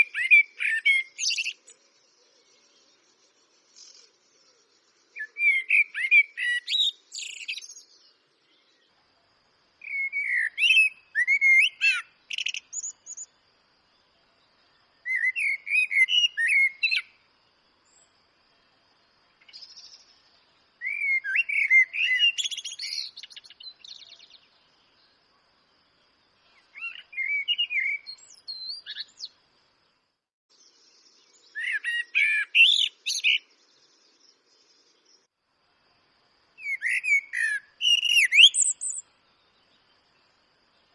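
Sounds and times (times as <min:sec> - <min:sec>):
blackbird singing: 0:00.0 - 0:03.1, 0:03.7 - 0:08.9, 0:09.8 - 0:13.4, 0:14.3 - 0:17.2, 0:19.4 - 0:25.2, 0:26.4 - 0:29.4, 0:30.6 - 0:35.3, 0:36.6 - 0:40.4.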